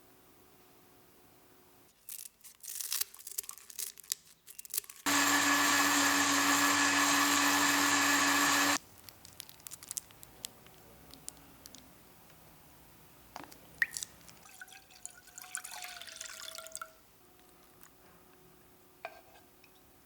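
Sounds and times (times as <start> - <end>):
crinkly rustling: 1.9 - 5.1, 8.8 - 11.9
blender motor running: 5.1 - 8.8.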